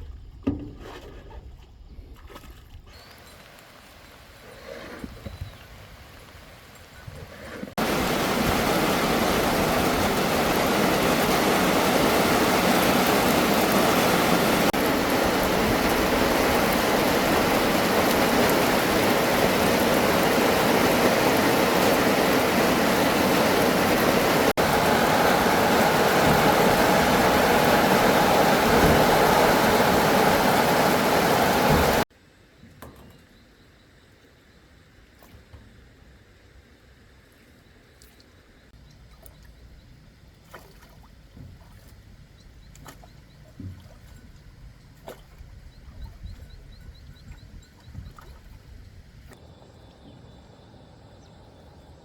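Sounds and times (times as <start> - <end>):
rush of flowing water: 3.0 - 32.1.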